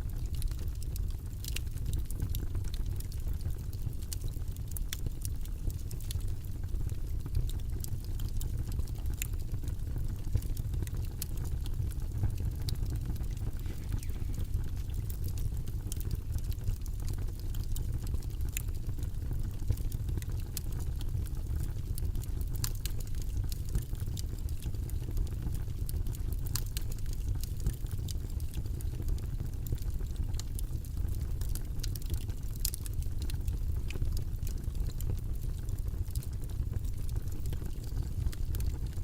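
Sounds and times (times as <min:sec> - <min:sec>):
deep white noise rumble: 0:11.7 - 0:17.0.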